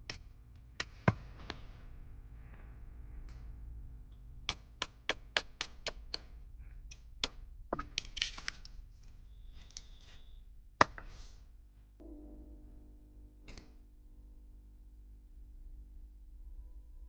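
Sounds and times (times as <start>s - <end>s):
sharp taps and knocks: 7.2s - 8.6s.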